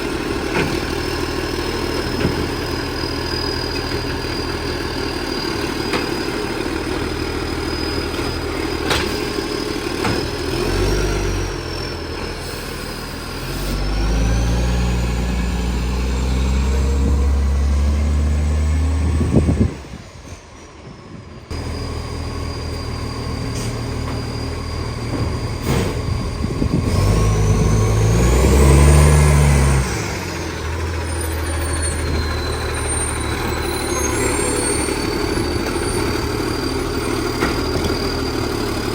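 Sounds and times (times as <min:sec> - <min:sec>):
diesel engine idling and revving: 0:00.0 - 0:20.4, 0:21.2 - 0:38.9.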